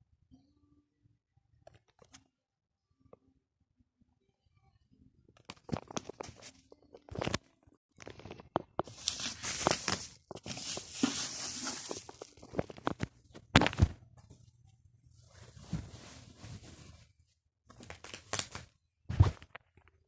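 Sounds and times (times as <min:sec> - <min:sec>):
packaging rustling and tearing: 0:08.0 - 0:13.8, 0:17.7 - 0:18.7.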